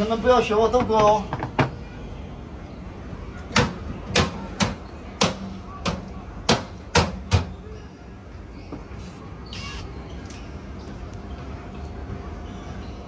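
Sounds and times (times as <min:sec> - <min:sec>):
sharp knocks: 0:03.6 - 0:07.6.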